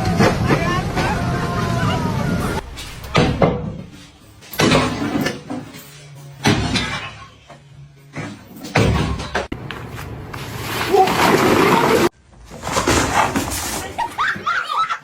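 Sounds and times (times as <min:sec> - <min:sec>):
heavy bangs: 0:02.4 - 0:05.5.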